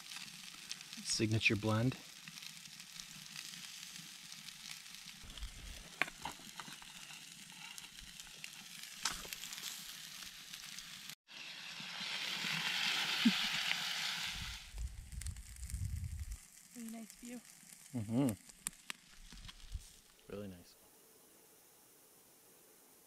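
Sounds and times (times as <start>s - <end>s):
loud steady hiss: 0.0s - 2.1s
fish sizzling in pan: 0.0s - 20.3s
oil popping and crackling: 0.0s - 20.3s.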